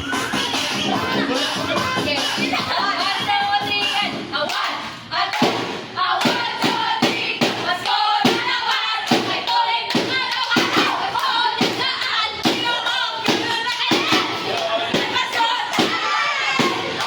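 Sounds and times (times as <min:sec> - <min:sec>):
quick beat of thumps or claps: 0:05.3 - 0:17.0.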